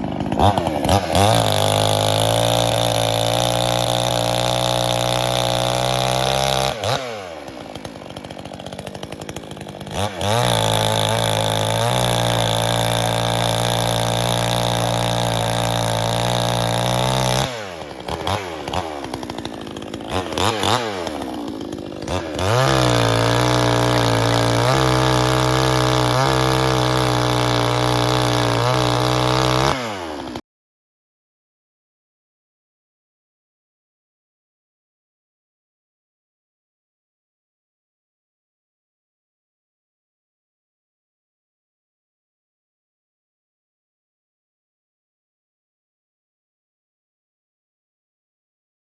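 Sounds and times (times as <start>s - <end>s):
chainsaw cutting log: 0.0s - 30.4s.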